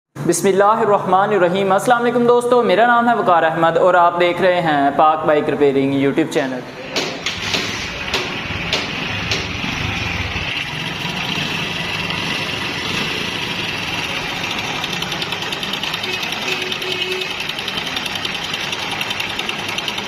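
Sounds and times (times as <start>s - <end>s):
motorcycle engine metallic clatter: 7.1s - 20.0s.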